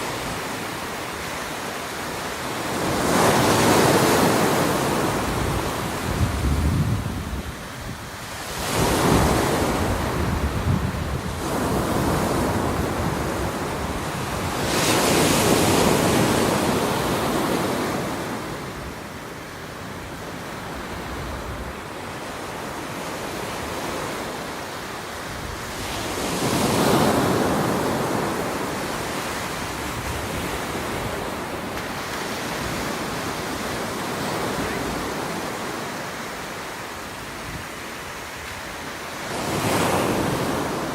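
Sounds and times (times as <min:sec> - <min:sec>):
ocean waves breaking: 0:00.0 - 0:40.9
wind rumbling on microphone: 0:03.4 - 0:19.2.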